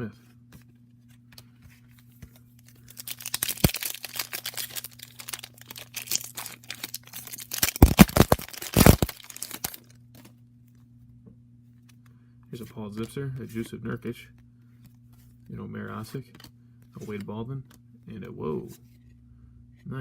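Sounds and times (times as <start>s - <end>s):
faint steady hum: 0.0s - 20.0s
wrapper tearing and crinkling: 2.7s - 9.9s.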